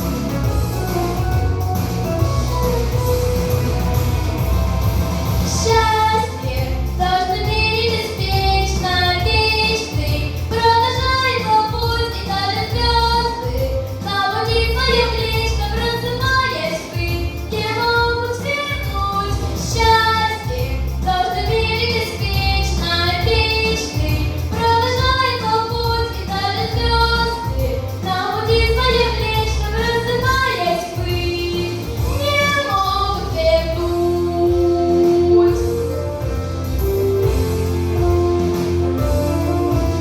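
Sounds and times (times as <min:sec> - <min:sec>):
instrumental accompaniment: 0:00.0 - 0:40.0
girl singing: 0:05.6 - 0:35.7.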